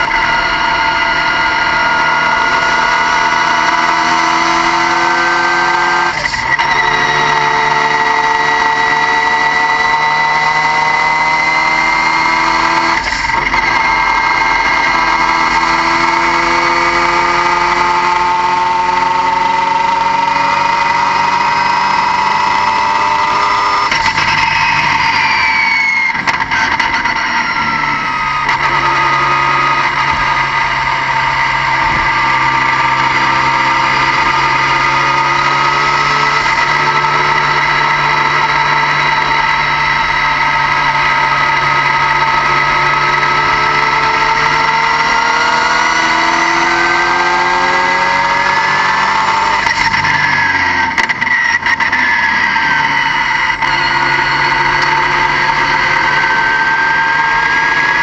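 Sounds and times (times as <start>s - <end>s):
short falling whine: 0.0s - 4.1s
high-pitched turbo whine: 0.0s - 58.0s.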